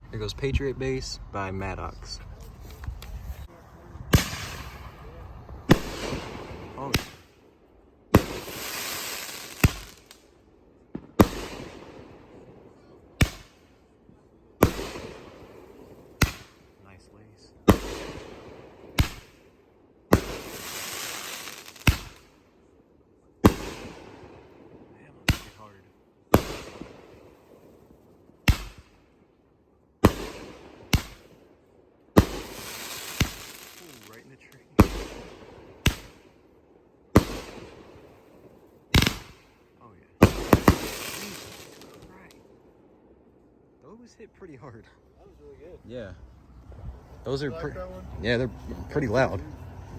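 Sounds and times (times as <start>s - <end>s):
firework bangs: 3.5s - 7.5s, 8.1s - 10.3s, 10.9s - 13.8s, 14.6s - 16.9s, 17.6s - 22.4s, 23.4s - 29.2s, 30.0s - 31.5s, 32.1s - 42.8s
firework hiss: 8.1s - 10.3s, 20.1s - 22.4s, 32.2s - 36.3s, 40.2s - 42.3s.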